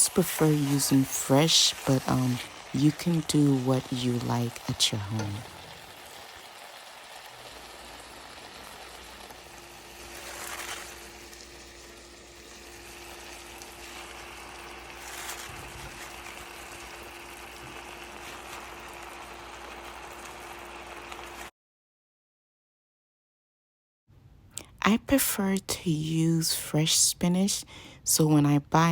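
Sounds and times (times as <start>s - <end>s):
food frying in oil: 0.0s - 21.5s.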